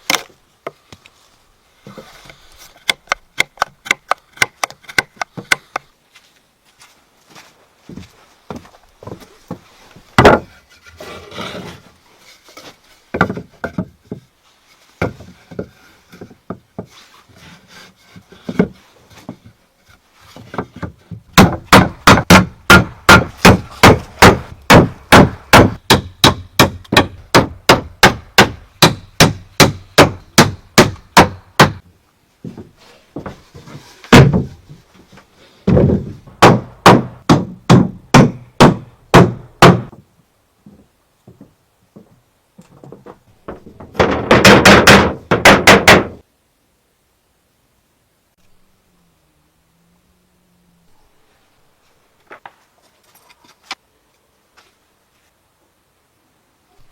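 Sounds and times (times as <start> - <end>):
wood knocking and rubbing: 8.5 - 11.9, 12.5 - 14.3, 14.9 - 22.4
sharp blows on wood: 21.4 - 31.8, 36.4 - 40.0, 44.0 - 46.2.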